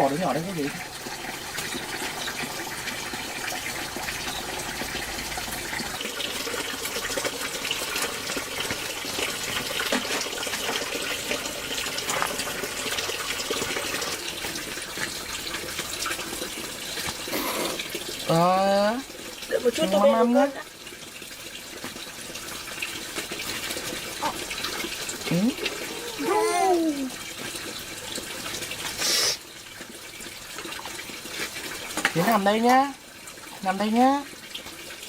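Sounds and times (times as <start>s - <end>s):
water running: 0.0s - 35.0s.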